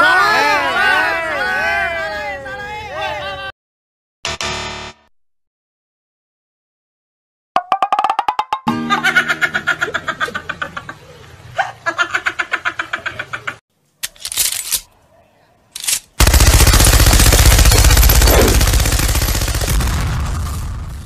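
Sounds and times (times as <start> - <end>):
cartoon laugh: 8.7 - 13.6
gun being readied clacks: 15.8 - 16.2
machine-gun fire: 16.2 - 21.0.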